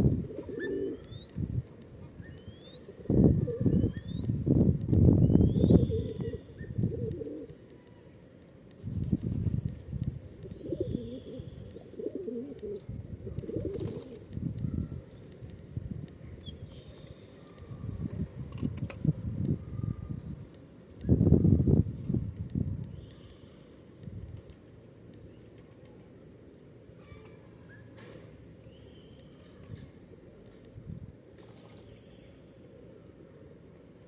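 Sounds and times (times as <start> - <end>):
pigeons cooing: 0.0 - 1.2, 2.9 - 4.1, 5.5 - 7.5, 10.4 - 14.2
birds chirping: 0.0 - 1.5, 2.2 - 7.0, 10.4 - 12.3.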